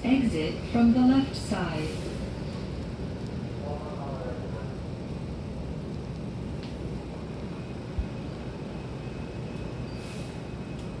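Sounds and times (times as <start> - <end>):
faint high squeal: 9.0 - 10.7.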